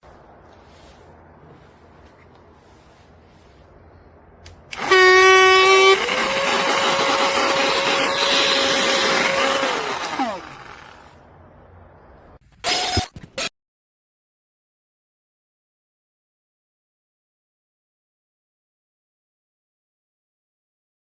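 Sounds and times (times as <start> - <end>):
vacuum cleaner motor whining: 4.7 - 11.2.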